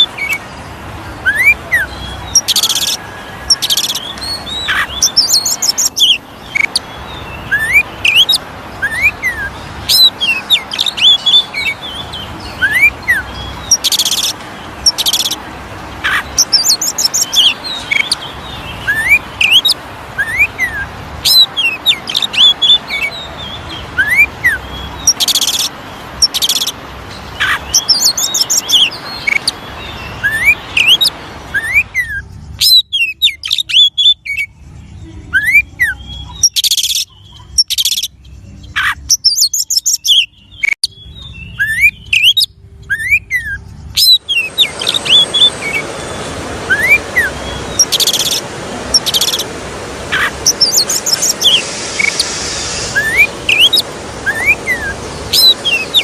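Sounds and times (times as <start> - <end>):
bird song: 0.0 - 56.0
steady hiss: 44.3 - 56.0.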